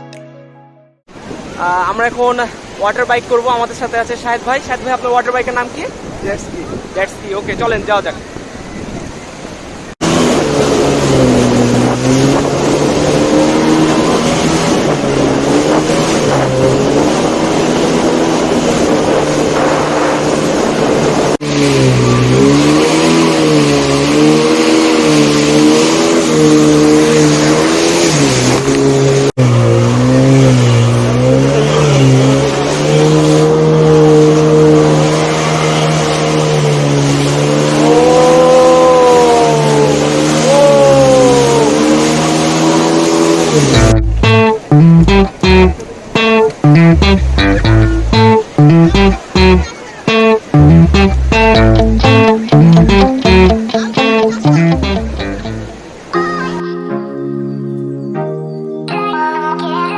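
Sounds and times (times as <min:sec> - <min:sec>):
jet ski engine revving: 0:10.0 - 0:46.6.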